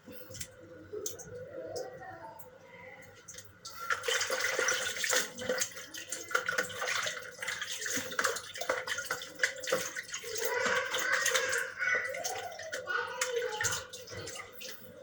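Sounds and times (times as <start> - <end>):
water splashing and sloshing: 3.1 - 15.0.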